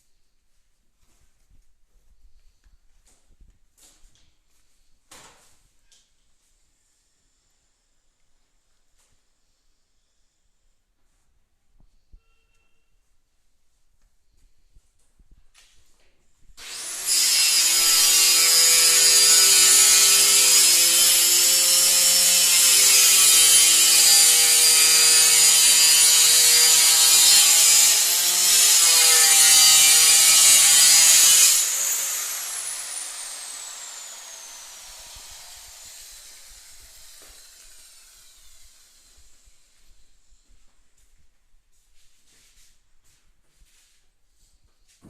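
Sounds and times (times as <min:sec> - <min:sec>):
electric power tool running: 0:16.6 - 0:39.7
power tool winding down whine: 0:16.6 - 0:40.5.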